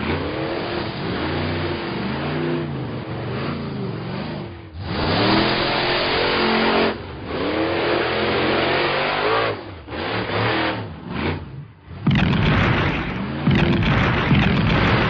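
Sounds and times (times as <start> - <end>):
cartoon car engine revving: 4.8 - 15.0.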